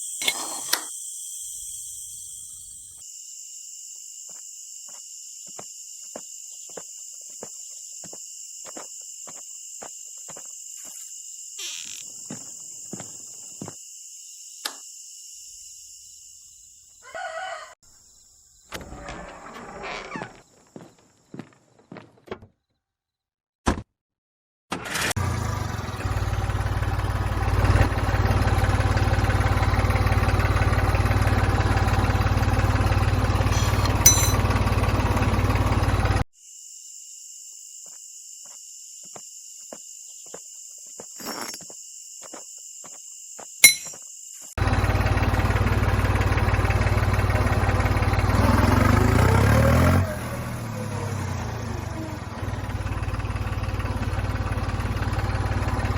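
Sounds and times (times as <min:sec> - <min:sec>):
small motor humming: 0:00.0 - 0:03.0, 0:25.2 - 0:36.2
thin steady whine: 0:00.0 - 0:03.0.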